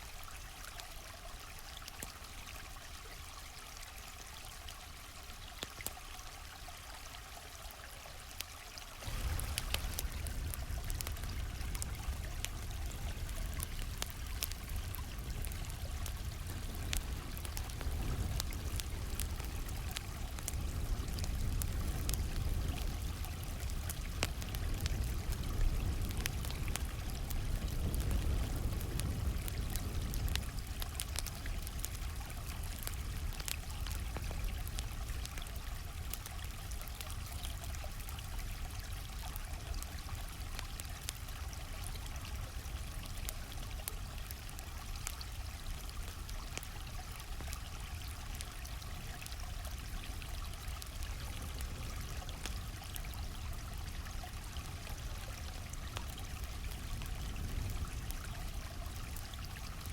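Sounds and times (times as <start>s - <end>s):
stream water flowing: 0.0s - 59.9s
campfire crackling and popping: 5.4s - 6.1s, 8.3s - 59.9s
deep low rumble: 9.0s - 14.4s.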